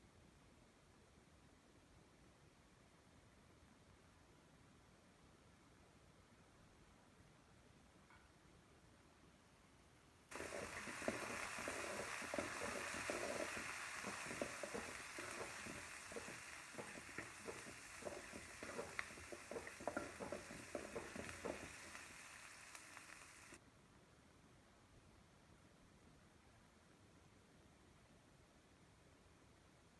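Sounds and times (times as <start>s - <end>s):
food sizzling in hot oil: 10.3s - 23.6s
spoon scraping pan: 10.3s - 23.6s.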